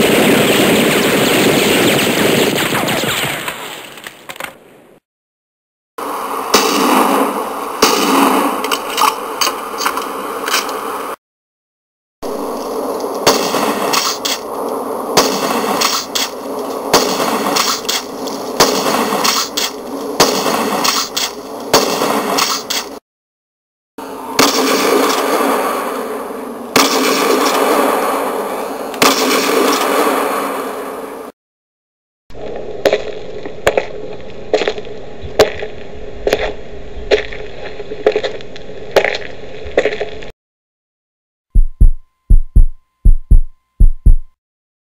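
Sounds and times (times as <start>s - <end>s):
shotgun shots: 16.9s - 17.9s, 24.4s - 25.4s, 26.8s - 27.8s, 29.0s - 30.1s
footsteps walking: 32.9s - 40.3s.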